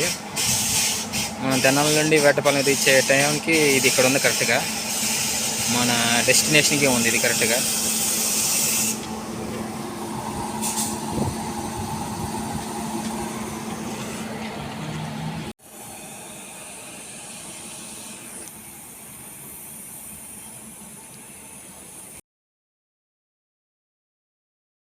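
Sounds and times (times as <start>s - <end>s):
steady tones: 0.0s - 15.5s
electric train hum and hiss: 0.0s - 22.2s.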